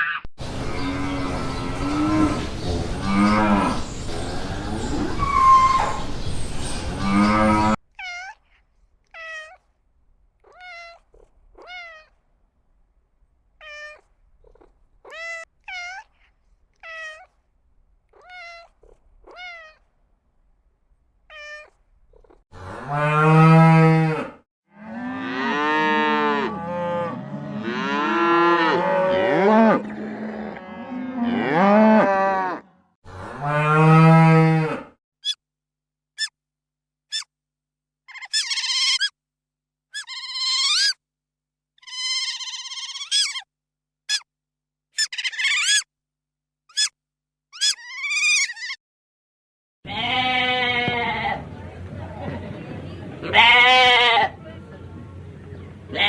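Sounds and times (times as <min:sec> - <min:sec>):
short high animal cries: 0:08.0 - 0:08.4, 0:13.6 - 0:14.0, 0:14.6 - 0:17.3, 0:19.3 - 0:19.8, 0:38.1 - 0:39.1, 0:47.6 - 0:48.8.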